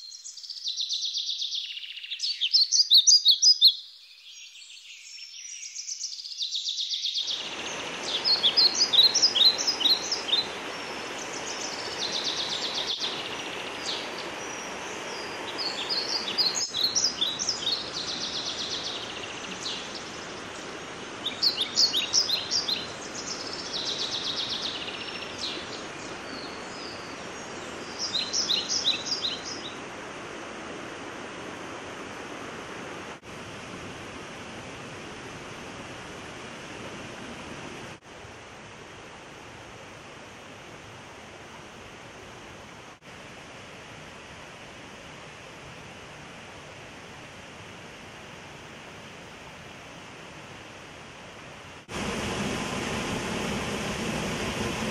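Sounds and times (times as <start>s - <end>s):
songbird singing: 0.0s - 29.8s
steady rushing noise: 51.8s - 54.9s.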